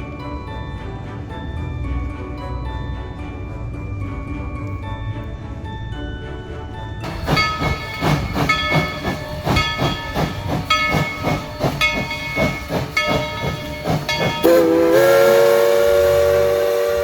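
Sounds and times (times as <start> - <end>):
locomotive bell ringing: 7.0 - 17.0
steam locomotive chuffing: 7.0 - 17.0
steam whistle blast: 14.4 - 17.0.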